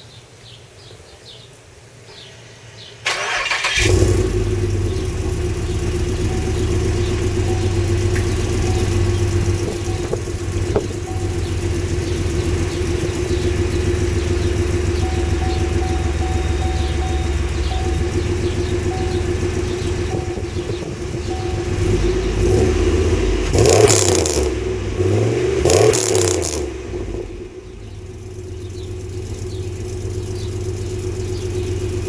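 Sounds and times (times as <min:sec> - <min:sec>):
starter cranking: 0:03.1 - 0:21.8
car engine revving and idling: 0:03.1 - 0:32.0.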